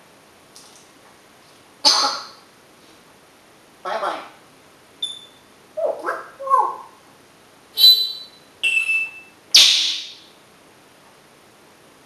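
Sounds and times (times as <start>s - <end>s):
parrot calling and squawking: 5.0s - 7.0s, 7.8s - 10.2s.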